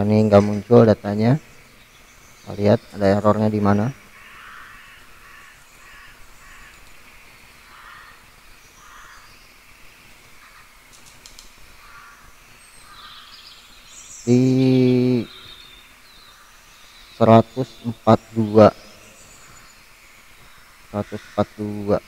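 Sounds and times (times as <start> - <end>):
distant raspy bird calls: 0.0 - 22.0
quick clicks: 10.9 - 11.6.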